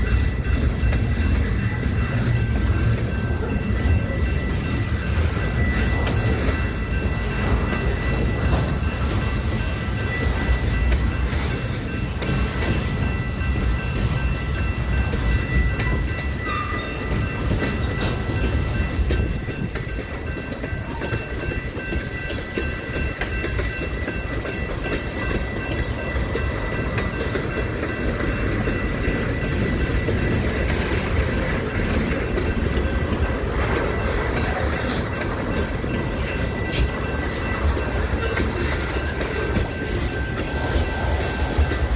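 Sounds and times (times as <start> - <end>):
train rumbling past: 0.0 - 41.9
wheels clicking over rail joints: 0.0 - 41.9.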